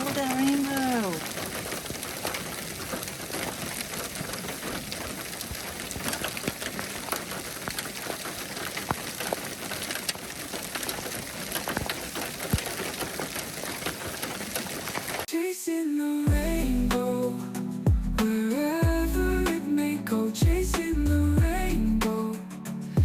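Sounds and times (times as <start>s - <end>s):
raindrops clicking sharply: 0.0s - 15.3s
steady rain falling: 0.0s - 15.3s.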